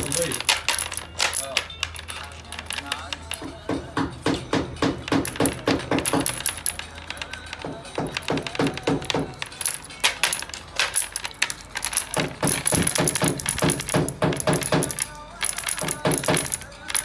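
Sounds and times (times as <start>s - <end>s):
rapid metallic tapping of hand tool: 3.2s - 10.9s, 11.9s - 17.0s.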